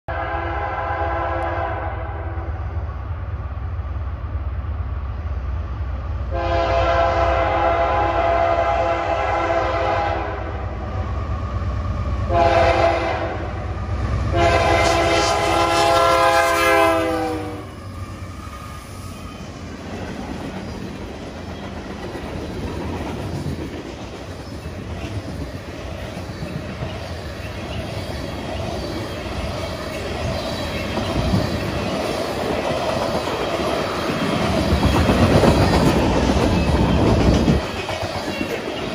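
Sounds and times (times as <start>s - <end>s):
locomotive air horn blasts: 0.1s - 2.4s, 6.3s - 10.6s, 12.3s - 13.6s, 14.3s - 17.8s
low train rumble: 0.1s - 38.9s
wheels clickety-clack: 19.6s - 38.9s.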